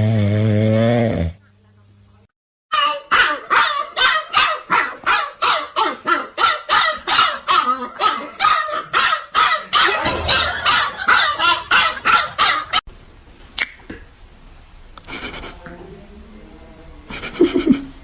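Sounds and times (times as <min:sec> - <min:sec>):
dog barking: 0:02.8 - 0:12.8.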